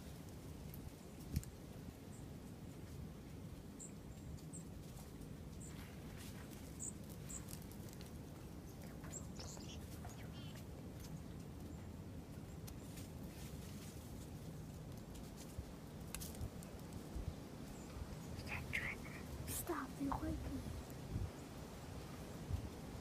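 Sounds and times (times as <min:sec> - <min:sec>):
small birds chirping: 0:03.7 - 0:14.0, 0:16.2 - 0:22.6.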